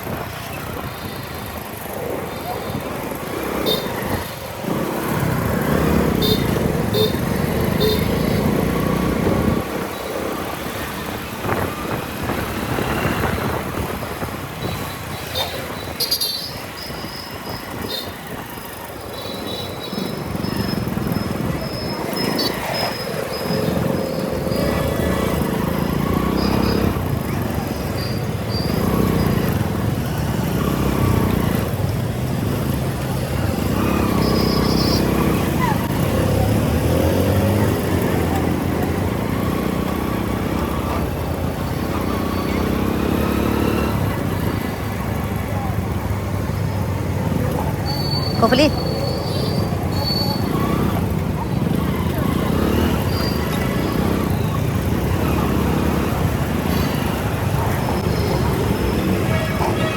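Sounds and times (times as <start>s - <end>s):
motorcycle engine: 0.0s - 59.9s
wind and road noise: 0.0s - 59.9s
motorcycle engine running: 0.1s - 15.5s.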